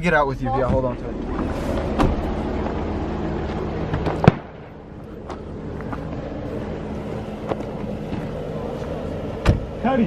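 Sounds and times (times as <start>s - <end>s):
engine idling: 0.0s - 10.0s
car door slamming: 1.7s - 2.4s, 9.3s - 9.9s.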